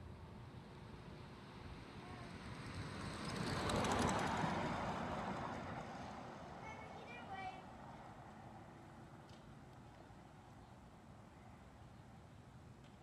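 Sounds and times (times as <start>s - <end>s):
vehicle passing by: 1.3s - 8.8s.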